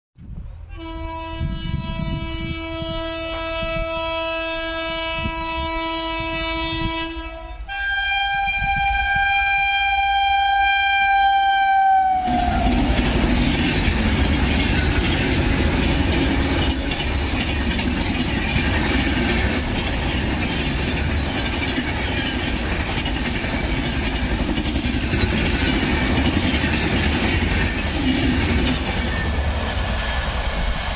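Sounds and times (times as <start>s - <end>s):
train passing with rushing rumble: 0.2s - 30.9s
train horn: 0.6s - 13.2s, 15.4s - 17.1s.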